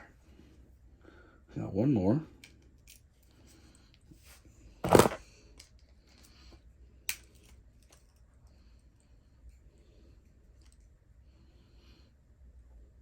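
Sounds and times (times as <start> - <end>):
faint fiddling with small parts: 2.3 - 11.3.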